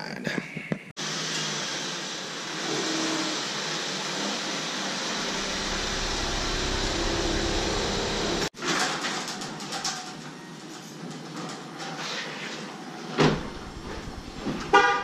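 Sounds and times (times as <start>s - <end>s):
car engine rumbling: 5.1s - 8.5s, 13.4s - 14.8s.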